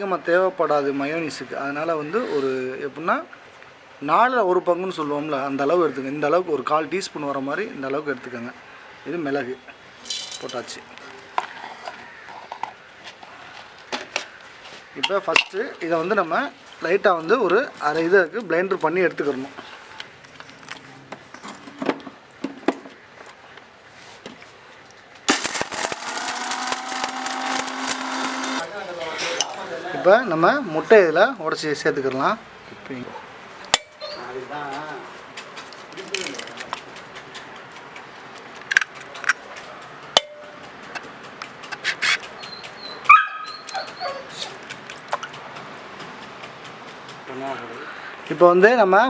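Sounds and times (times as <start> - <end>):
electric mixer grinder running: 25.3 - 28.7
dog whimpering: 33.9 - 34.4, 42.2 - 44.6.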